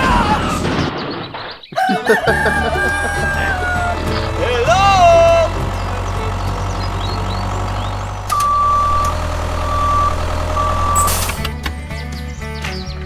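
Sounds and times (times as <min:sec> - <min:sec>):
vehicle engine running: 0:02.2 - 0:12.1
reversing alarm beeping: 0:02.3 - 0:11.5.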